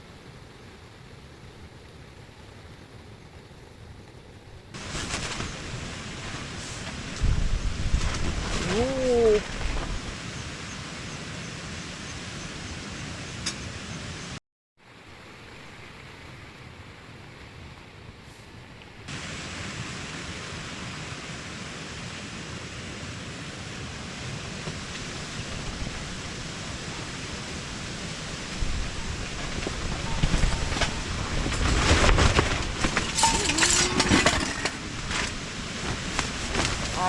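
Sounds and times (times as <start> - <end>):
heavy rain and wind hiss: 0.0 - 37.0
wind gusts buffeting: 0.2 - 14.0, 23.6 - 37.0
knocks and rattles: 29.3 - 37.0.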